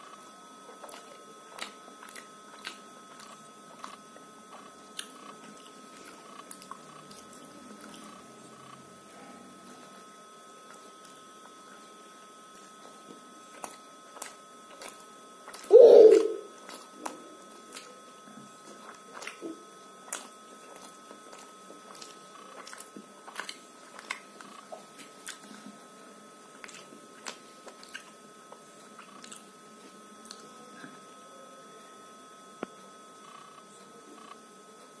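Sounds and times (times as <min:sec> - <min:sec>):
wet chewing squishes: 0:00.0 - 0:08.9, 0:10.6 - 0:11.6, 0:12.2 - 0:15.7, 0:16.5 - 0:25.9, 0:26.5 - 0:30.6
mouth clicks: 0:15.7 - 0:16.4.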